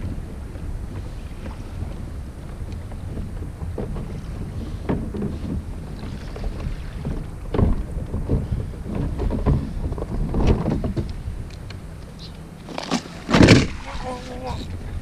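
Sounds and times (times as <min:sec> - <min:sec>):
water slapping against kayak hull: 0:00.0 - 0:14.8
wind buffeting microphone: 0:00.0 - 0:15.0.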